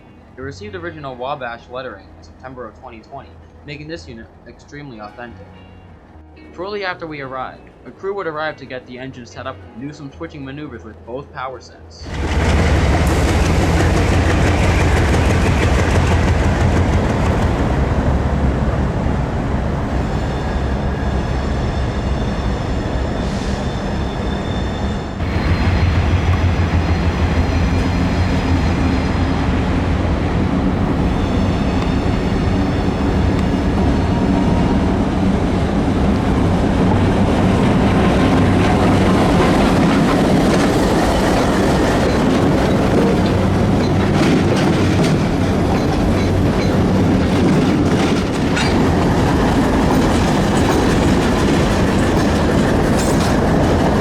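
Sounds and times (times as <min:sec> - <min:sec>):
diesel locomotive engine rumble: 0:12.0 - 0:54.0
wheels clicking over rail joints: 0:37.4 - 0:54.0.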